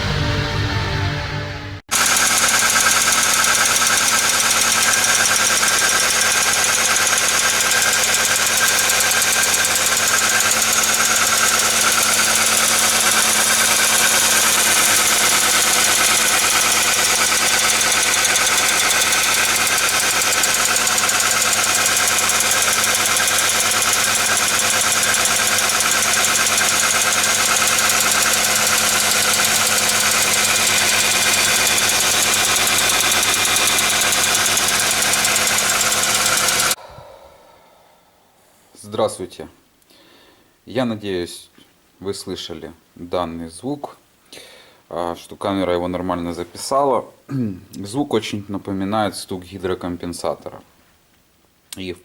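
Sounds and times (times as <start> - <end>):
car engine running: 1.9 - 36.8
fast tapping valvetrain knock: 1.9 - 36.8.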